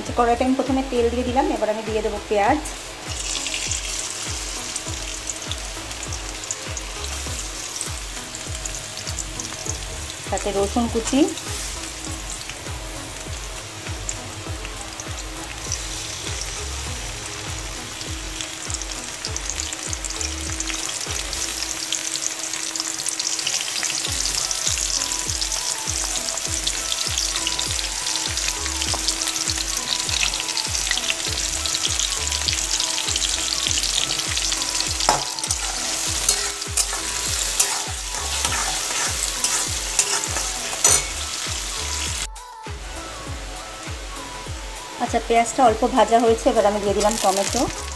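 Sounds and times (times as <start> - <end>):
onions sizzling in hot oil: 0.0 - 47.9
spatula scraping a metal pan: 35.0 - 41.3.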